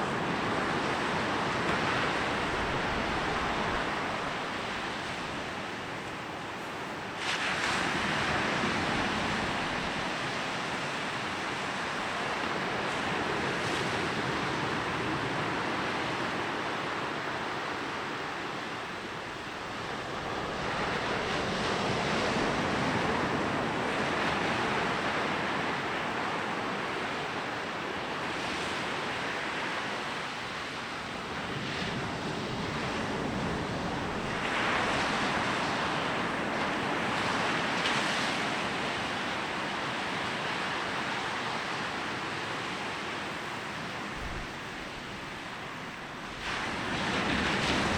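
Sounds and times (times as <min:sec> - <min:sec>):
sea waves washing onto beach: 0:00.0 - 0:47.9.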